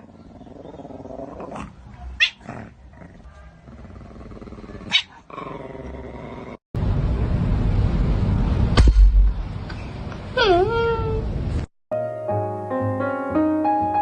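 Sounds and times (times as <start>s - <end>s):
dog growling: 0.0s - 1.8s, 2.4s - 6.6s
dog yipping: 2.2s - 2.4s, 4.9s - 5.2s.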